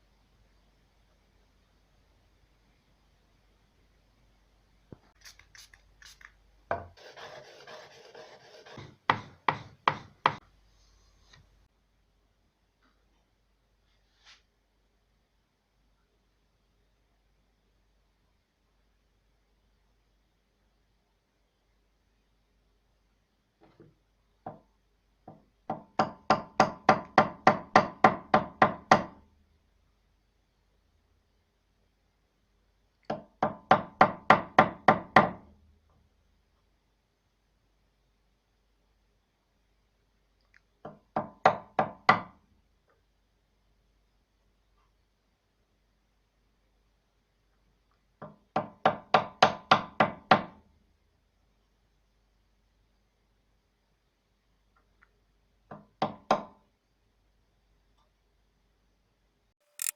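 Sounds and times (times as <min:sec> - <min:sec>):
rasping on wood: 0:07.0 - 0:10.4.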